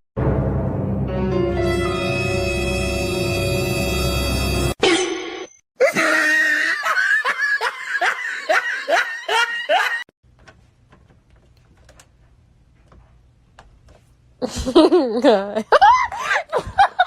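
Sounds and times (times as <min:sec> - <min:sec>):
person laughing: 0:05.8 - 0:10.1, 0:14.4 - 0:17.0.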